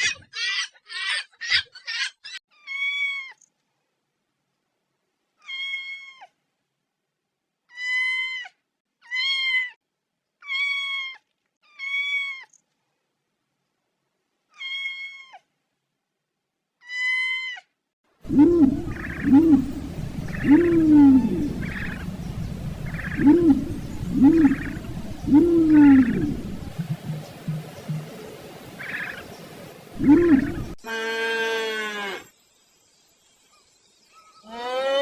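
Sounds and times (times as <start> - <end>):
cat meowing: 14.6 - 15.4.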